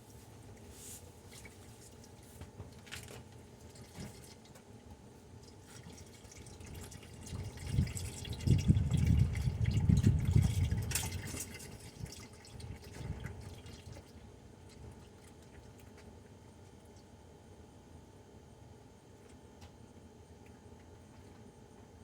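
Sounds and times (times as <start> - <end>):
oil dripping and trickling: 5.4 - 16.0.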